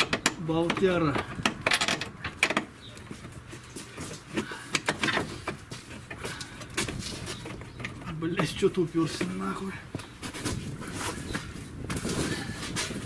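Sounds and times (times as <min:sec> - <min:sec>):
metal clinks and knocks: 0:00.0 - 0:08.6.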